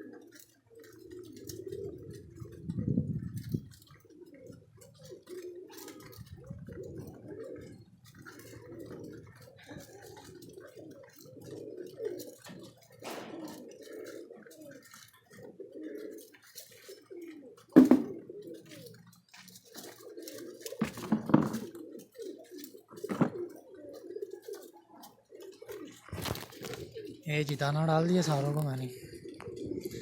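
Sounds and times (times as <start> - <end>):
pigeons cooing: 0.0 - 30.0
sharp knocks and clatters: 13.0 - 13.7, 17.7 - 18.2, 20.8 - 21.7, 23.0 - 23.5.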